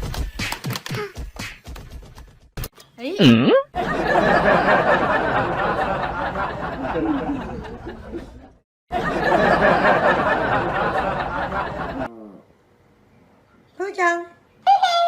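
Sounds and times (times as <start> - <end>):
people laughing: 3.8 - 12.1.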